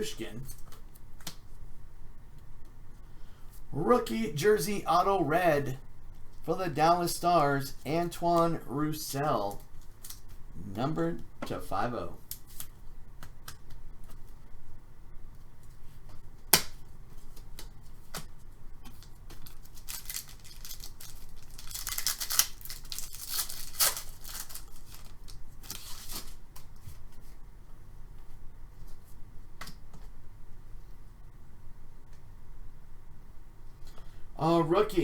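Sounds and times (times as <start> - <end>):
cards rustling and sliding: 19.3 - 27.4
card packaging snapping: 19.4 - 26.7.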